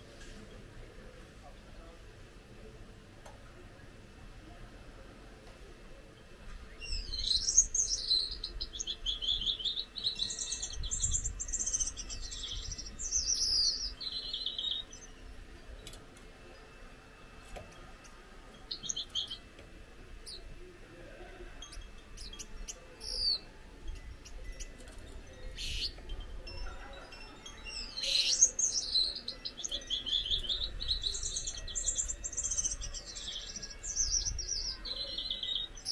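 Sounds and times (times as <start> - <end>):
finch singing buzzy notes: 6.6 - 20.8, 21.5 - 35.9.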